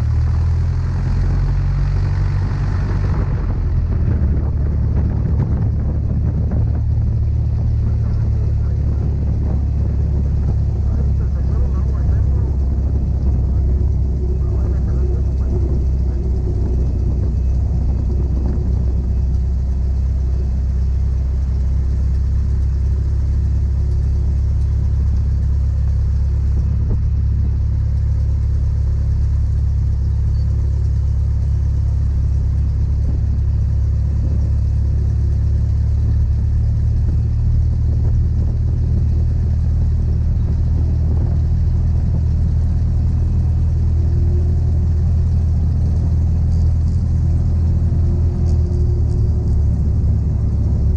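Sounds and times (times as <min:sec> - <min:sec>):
propeller plane engine droning: 0:00.0 - 0:50.9.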